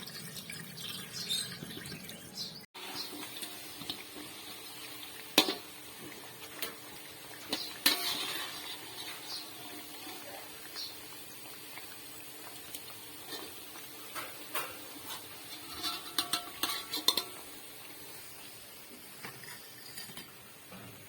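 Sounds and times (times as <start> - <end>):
metal utensils knocking on dishes: 15.6 - 17.4.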